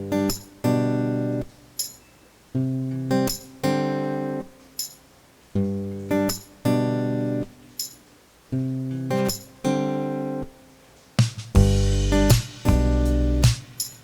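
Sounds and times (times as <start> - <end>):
acoustic guitar strumming: 0.0 - 2.0, 2.6 - 10.7, 11.4 - 14.0
light percussive taps: 11.2 - 14.0.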